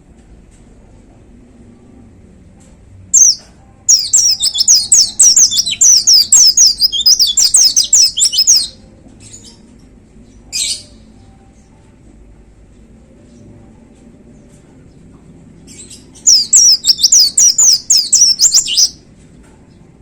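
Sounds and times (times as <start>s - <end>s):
white-eye bird singing: 3.2s - 9.6s, 15.6s - 19.0s.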